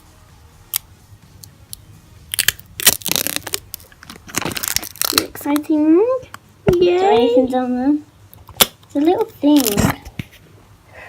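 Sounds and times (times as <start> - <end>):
packaging wrap crinkling: 2.3 - 5.6.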